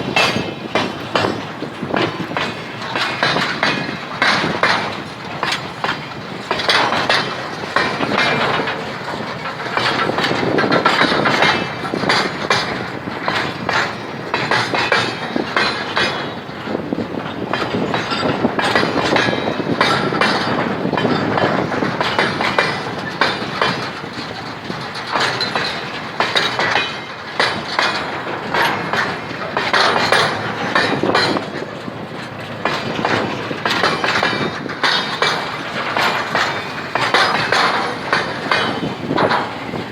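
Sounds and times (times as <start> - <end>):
train wheels clattering over rail joints: 0.0 - 39.9
metallic clanks: 0.1 - 39.9.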